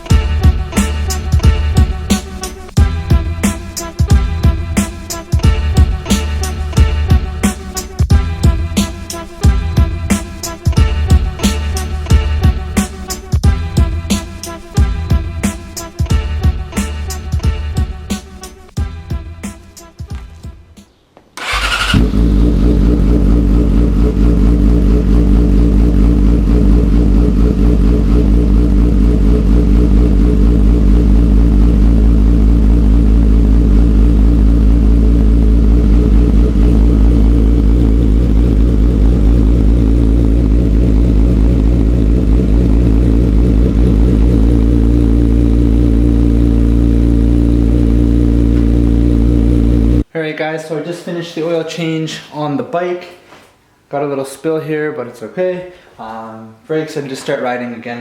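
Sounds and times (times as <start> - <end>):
motorcycle engine starting and running: 0.0 - 17.8, 21.4 - 50.0.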